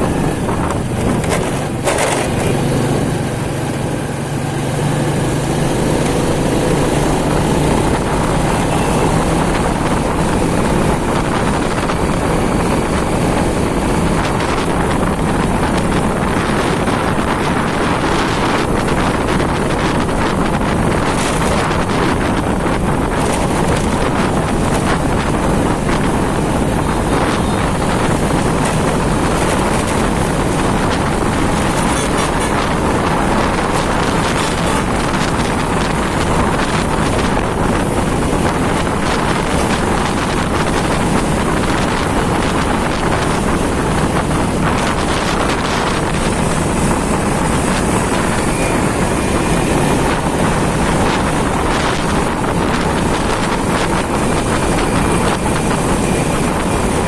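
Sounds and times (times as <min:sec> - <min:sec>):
motorcycle running: 0:00.0 - 0:57.0
road noise: 0:00.0 - 0:57.0
wind rush on microphone: 0:00.0 - 0:57.0.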